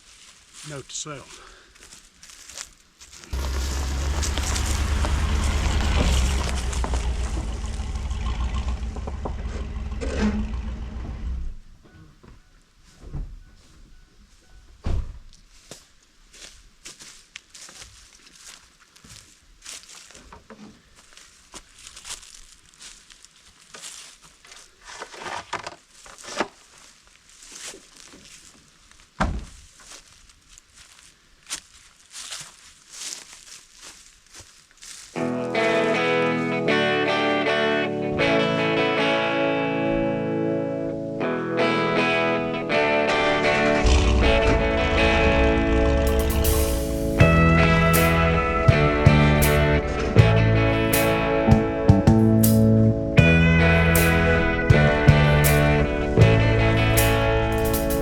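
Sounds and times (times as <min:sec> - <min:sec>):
rustling of brush and dry leaves: 0:00.0 - 0:09.9, 0:15.3 - 0:36.4, 0:43.1 - 0:48.3
footsteps: 0:00.0 - 0:11.2, 0:11.9 - 0:35.6, 0:43.1 - 0:56.4
pickup truck driving: 0:03.3 - 0:11.6, 0:43.1 - 0:58.0.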